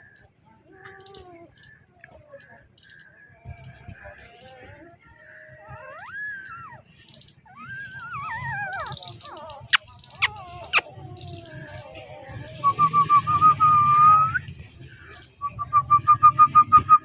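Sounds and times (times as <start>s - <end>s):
puppies whining: 5.6s - 6.9s, 7.5s - 12.3s.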